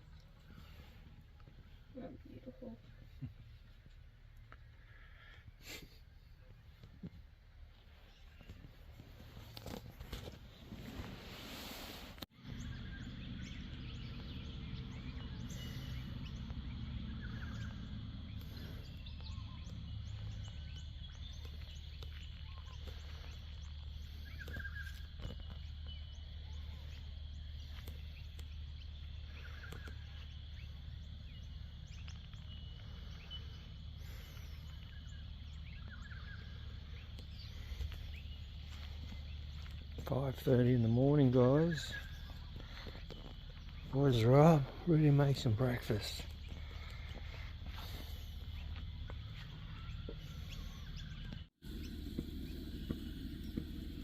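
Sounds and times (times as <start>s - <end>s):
short bird chirps: 12.4s - 40.0s
steady low rumble: 12.4s - 54.0s.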